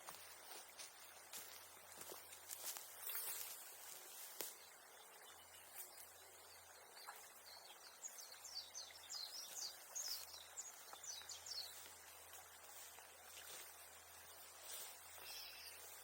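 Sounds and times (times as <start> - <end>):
small bird chirping: 5.0 - 11.9, 14.2 - 16.0.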